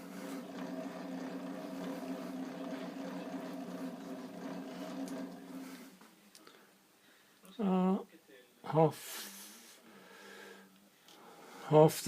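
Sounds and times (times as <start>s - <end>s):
hand-cranked gears whirring: 0.0s - 6.0s.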